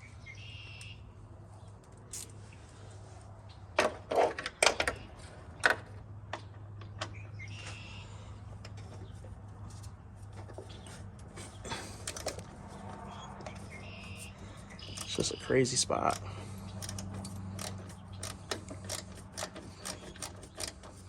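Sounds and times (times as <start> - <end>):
hand tool clicking on metal: 16.1 - 21.0.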